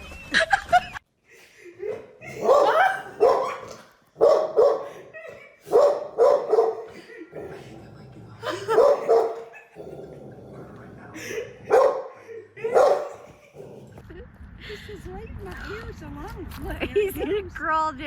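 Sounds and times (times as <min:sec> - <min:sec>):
dog barking: 0:01.8 - 0:07.0, 0:08.6 - 0:09.8, 0:11.6 - 0:13.4.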